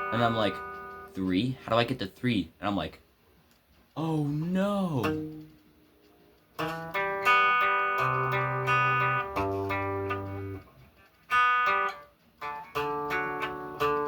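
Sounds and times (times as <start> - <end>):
guitar chords ringing: 0.0 - 1.2, 4.3 - 5.6, 6.6 - 10.7, 11.3 - 14.0.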